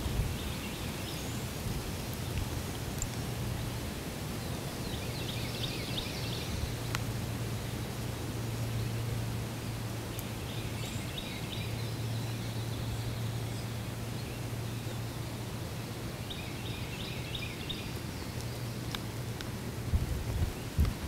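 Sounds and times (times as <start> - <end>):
faint sharp clicks: 2.2 - 3.2, 6.8 - 7.1, 10.1 - 10.3, 17.7 - 19.6
small bird singing: 4.4 - 6.9, 10.1 - 19.0.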